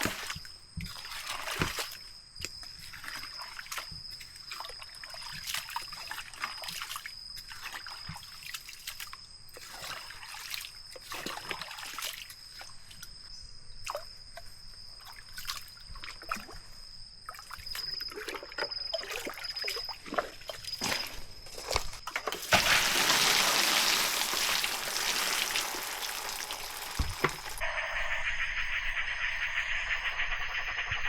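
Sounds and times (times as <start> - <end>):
water trickling and splashing: 0.0 - 13.3, 13.9 - 27.6
steady high-pitched tone: 27.6 - 31.0.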